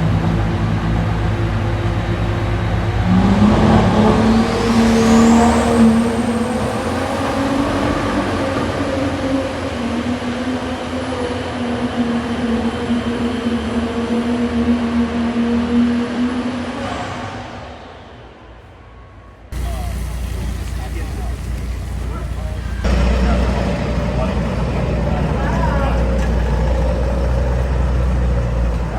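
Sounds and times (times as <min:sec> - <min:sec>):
vehicle engine running: 0:00.0 - 0:11.0, 0:19.6 - 0:28.9.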